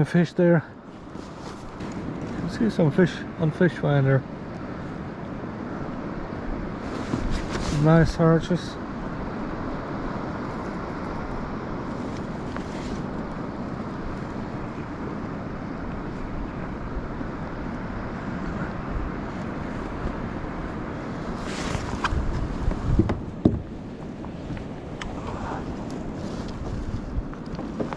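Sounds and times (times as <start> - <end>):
rustle: 0.0 - 27.9
wind rumbling on microphone: 0.7 - 27.9
low knocks: 22.9 - 23.7.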